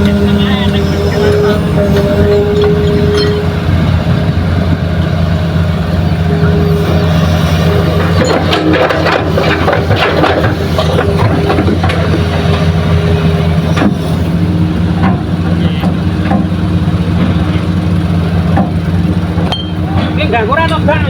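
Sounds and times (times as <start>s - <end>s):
metal clanks: 0.0s - 4.0s, 6.3s - 14.3s, 18.4s - 20.9s
heavy machinery diesel engine: 0.0s - 21.0s.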